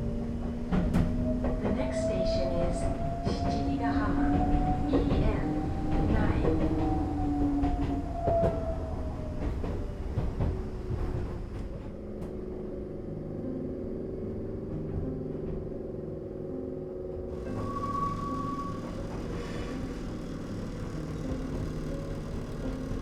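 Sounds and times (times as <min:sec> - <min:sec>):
train motor whine: 0:00.3 - 0:11.7, 0:17.3 - 0:23.0.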